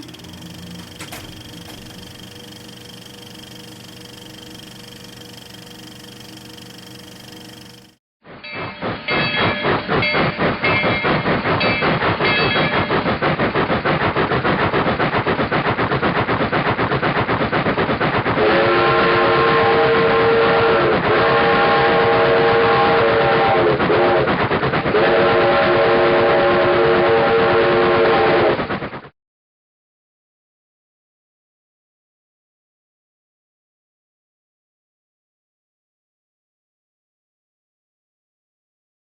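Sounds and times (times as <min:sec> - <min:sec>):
multi-tone train horn: 0:00.0 - 0:02.2, 0:18.4 - 0:28.6
train wheels clattering: 0:00.0 - 0:03.2.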